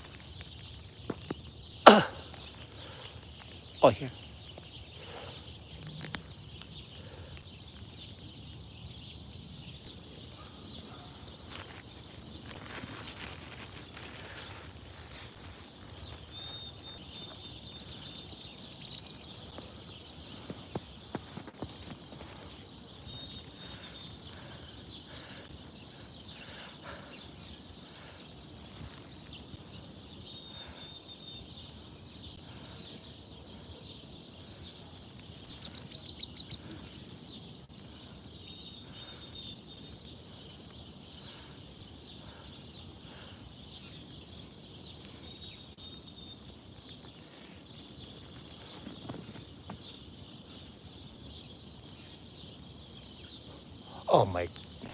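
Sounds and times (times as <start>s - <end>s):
high bird chirps: 13.8s - 54.9s.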